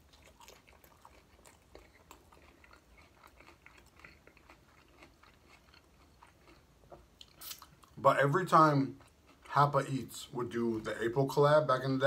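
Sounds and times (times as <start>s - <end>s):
crunchy chewing: 0.0s - 9.6s.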